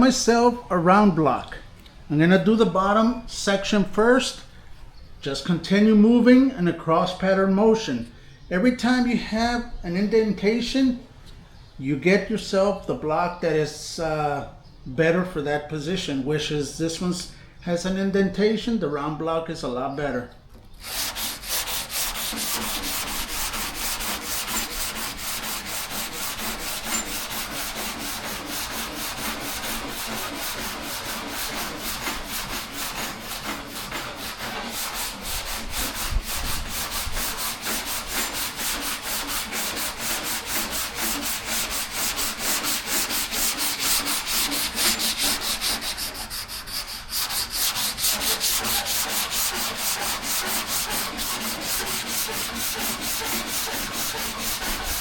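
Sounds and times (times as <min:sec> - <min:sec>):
sandpaper rasping on metal panel: 0:20.8 - 0:55.0.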